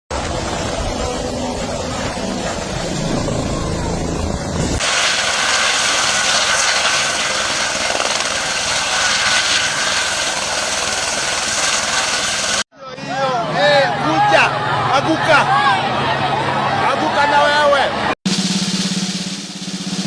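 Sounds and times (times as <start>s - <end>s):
helicopter running: 0.1s - 12.7s.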